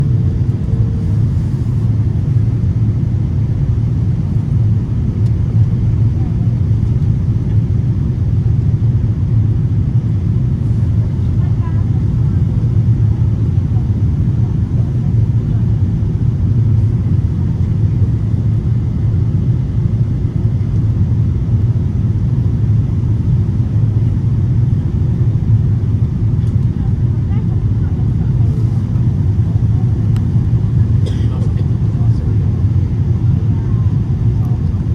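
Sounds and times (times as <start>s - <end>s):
airplane cabin engine rumble: 0.0s - 34.9s.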